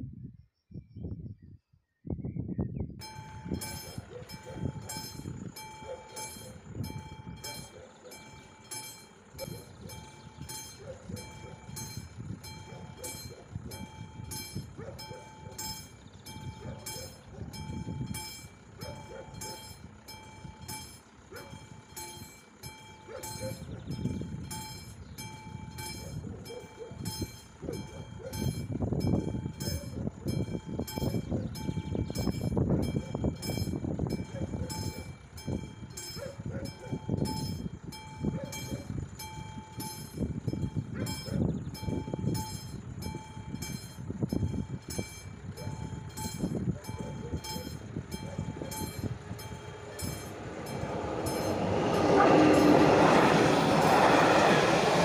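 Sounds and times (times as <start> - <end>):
level crossing bell ringing: 3.0 - 28.1
train rumble: 3.0 - 55.0.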